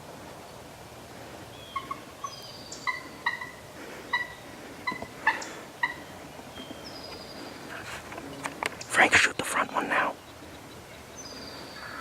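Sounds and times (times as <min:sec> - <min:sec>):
turkey clucking: 0:01.7 - 0:06.3.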